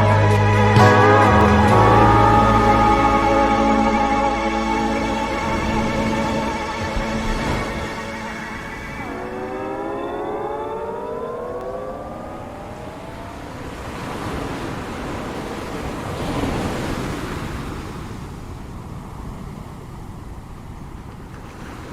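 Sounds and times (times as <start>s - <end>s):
music notes sliding upward: 0.0s - 13.9s
ocean waves washing on shore: 0.8s - 21.9s.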